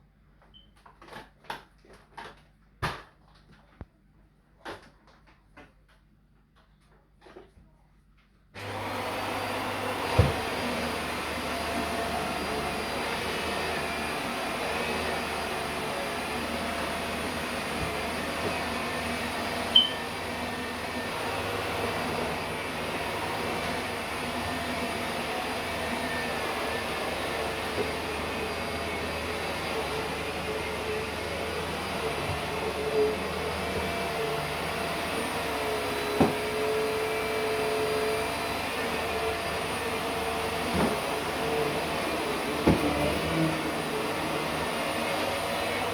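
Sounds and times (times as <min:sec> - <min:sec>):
vacuum cleaner running: 0:08.6 - 0:45.9.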